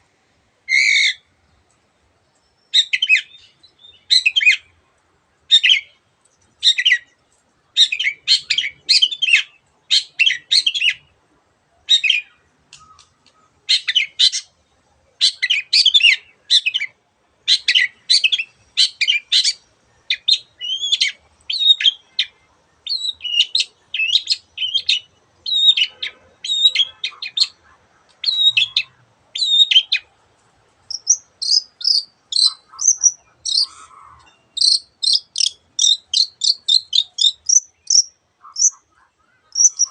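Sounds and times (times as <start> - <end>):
bird chattering song: 17.5 - 30.1, 30.9 - 39.9
bird whistled phrases: 28.2 - 30.0, 31.0 - 38.8.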